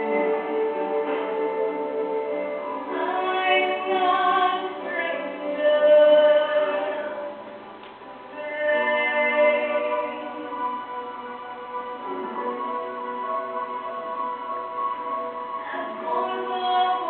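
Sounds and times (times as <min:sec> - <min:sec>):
musical accompaniment: 0:00.0 - 0:17.0
woman singing a ballad: 0:02.8 - 0:07.3, 0:08.3 - 0:11.4, 0:15.6 - 0:17.0.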